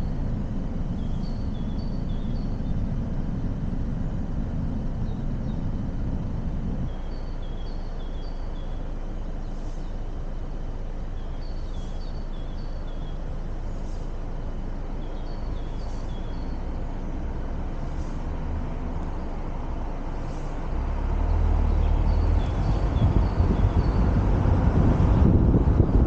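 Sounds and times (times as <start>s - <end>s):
city street traffic rumble: 0.0s - 26.0s
vehicle passing close: 15.6s - 26.0s.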